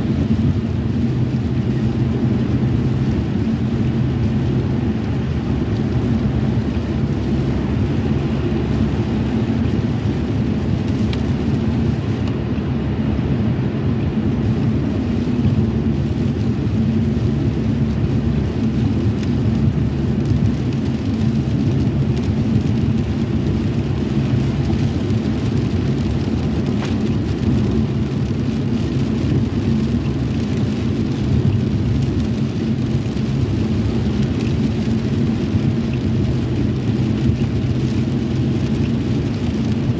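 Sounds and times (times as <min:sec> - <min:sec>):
car road and engine noise: 0:00.0 - 0:39.9
rain on vehicle: 0:00.0 - 0:39.9.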